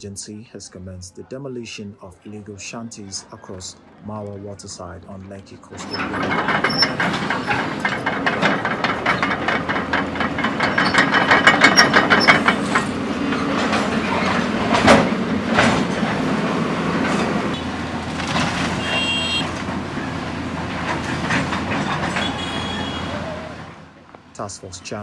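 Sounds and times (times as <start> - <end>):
fast metallic clatter: 5.8 - 23.4
machinery low rumble: 5.8 - 23.8.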